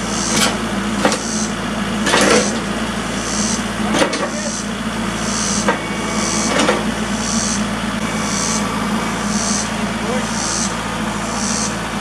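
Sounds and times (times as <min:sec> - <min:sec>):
engine running steadily: 0:00.0 - 0:12.0
rhythmic hiss: 0:07.1 - 0:11.8.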